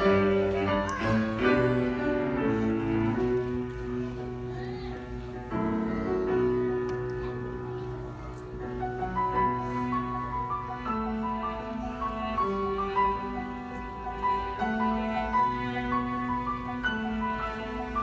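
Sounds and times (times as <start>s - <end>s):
cello: 0.0s - 18.0s
piano: 0.0s - 18.0s.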